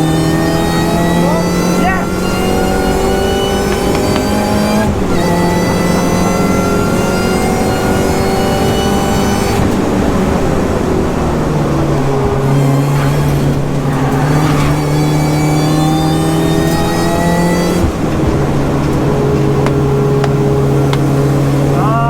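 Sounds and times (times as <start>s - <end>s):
car engine revving at speed: 0.0s - 22.0s.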